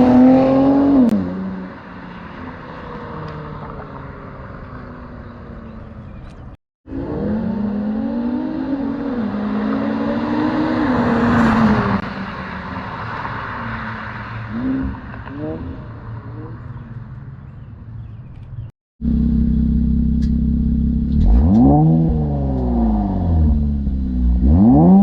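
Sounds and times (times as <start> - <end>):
car engine revving and accelerating: 0.0 - 1.8, 6.9 - 16.6, 19.0 - 25.0.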